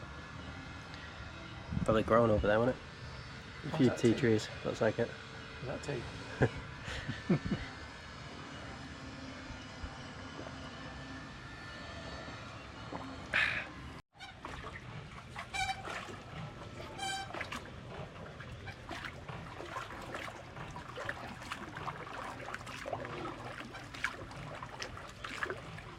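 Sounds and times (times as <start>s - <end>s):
low background hum: 0.0s - 25.9s.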